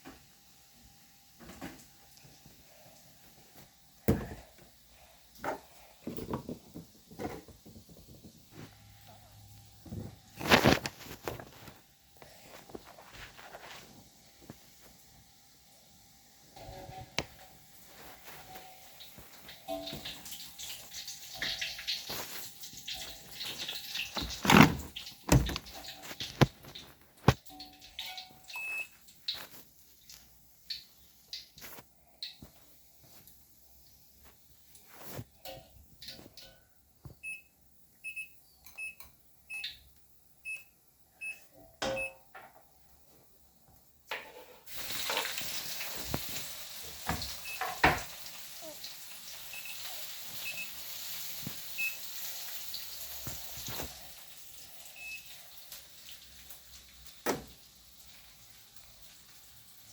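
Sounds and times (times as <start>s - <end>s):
water running or splashing: 15.8s - 36.4s, 44.6s - 59.9s
washing machine beeping: 22.9s - 26.4s, 27.2s - 29.0s, 37.2s - 42.3s, 47.1s - 48.1s, 49.4s - 50.8s, 51.7s - 52.2s, 54.9s - 55.4s.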